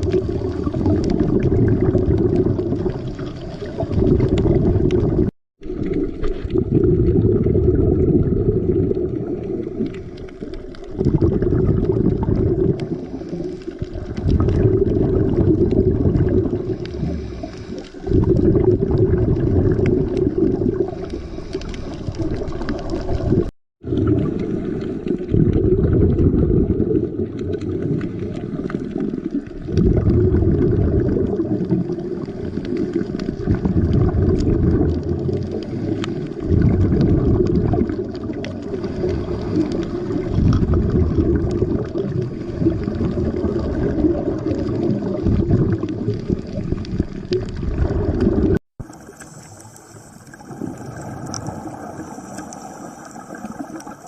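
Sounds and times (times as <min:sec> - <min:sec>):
bubbles rumbling underwater: 0:00.0 - 0:54.0
diver breathing through regulator: 0:16.6 - 0:18.6, 0:20.8 - 0:22.4, 0:35.5 - 0:36.6, 0:38.6 - 0:40.1.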